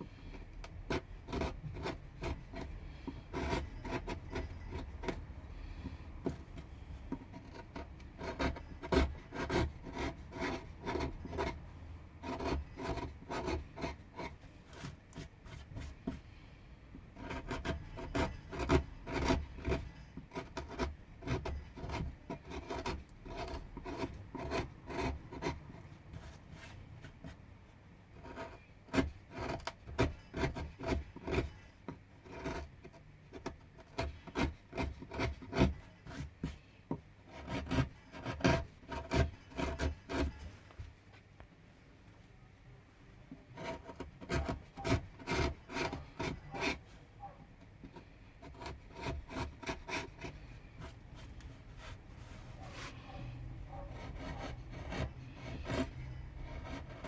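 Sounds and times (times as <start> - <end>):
carving tool scraping wood: 0.0 - 27.4, 28.2 - 40.5, 43.4 - 57.0.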